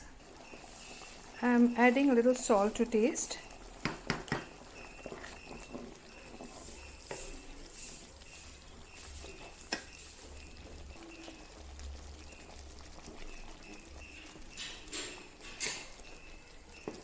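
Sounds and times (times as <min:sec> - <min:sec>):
spoon stirring curry in pot: 0:03.4 - 0:17.0
spoon knocking against pot: 0:03.8 - 0:04.5, 0:14.5 - 0:16.0.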